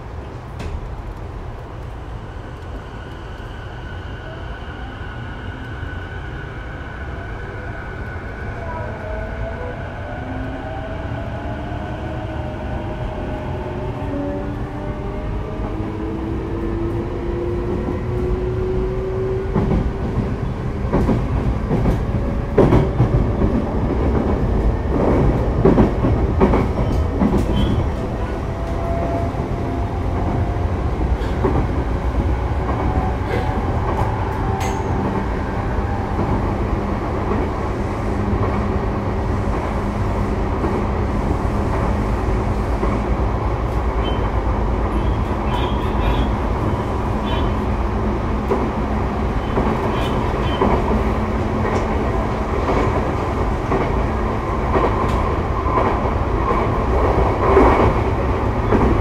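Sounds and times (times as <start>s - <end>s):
wheels rumbling on rail: 0.0s - 59.0s.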